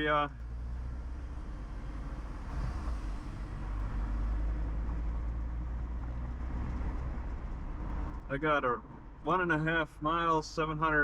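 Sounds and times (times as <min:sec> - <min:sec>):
road and engine noise in car: 0:00.0 - 0:11.0.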